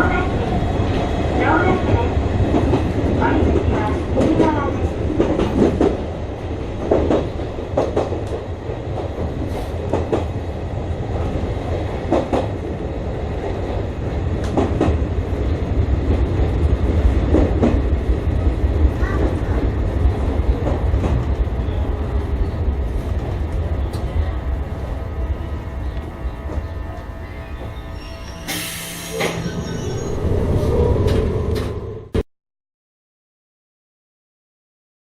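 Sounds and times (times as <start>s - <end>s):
train wheels rumbling on rails: 0.0s - 32.2s.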